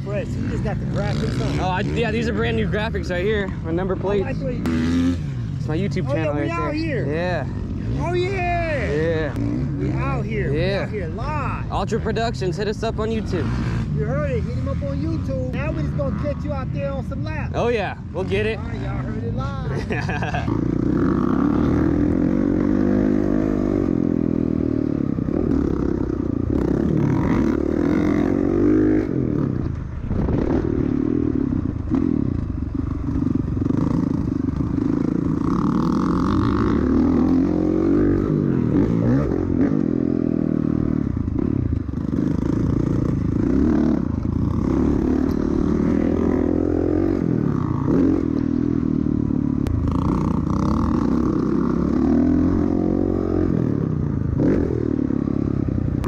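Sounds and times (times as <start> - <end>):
dirt bike engine revving: 0.0 - 19.1, 19.7 - 56.0.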